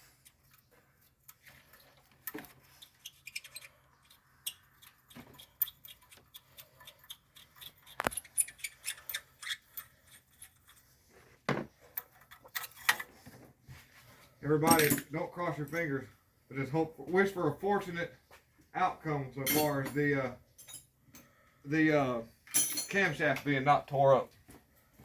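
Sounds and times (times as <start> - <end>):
hand tools clinking on metal: 14.6 - 16.0, 19.4 - 20.9, 22.5 - 23.5.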